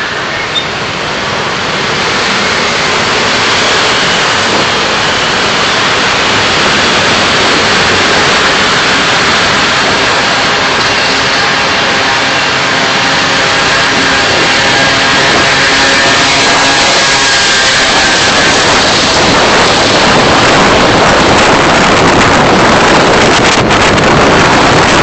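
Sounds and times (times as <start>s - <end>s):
car tyre and wind noise: 0.0s - 25.0s.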